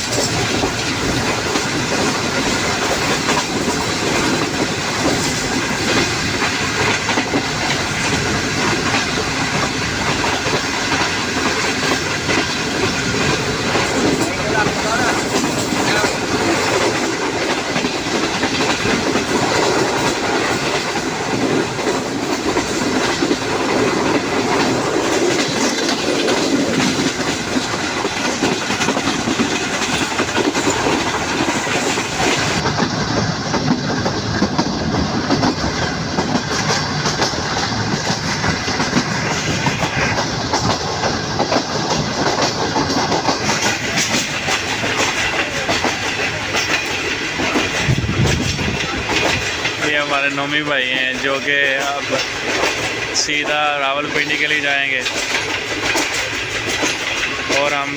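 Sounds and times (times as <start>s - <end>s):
clickety-clack over rail joints: 0.0s - 57.9s
train wheels rumbling: 0.0s - 57.9s.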